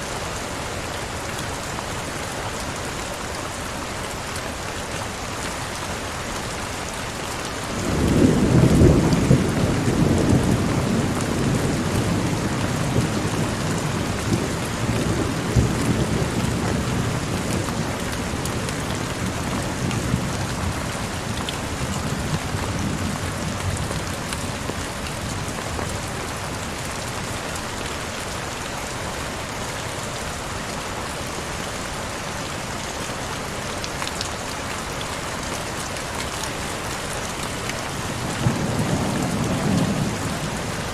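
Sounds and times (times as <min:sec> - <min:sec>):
heavy rain falling: 0:00.0 - 0:40.9
thunder rumbling: 0:07.8 - 0:17.8.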